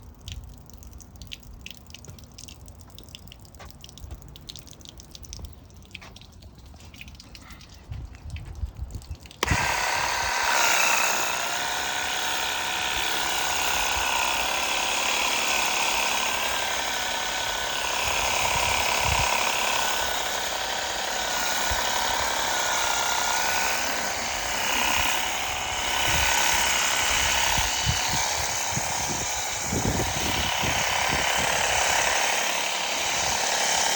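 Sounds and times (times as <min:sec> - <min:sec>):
pressure washer pump whining: 0:09.3 - 0:33.9
water spray hissing: 0:09.4 - 0:33.9.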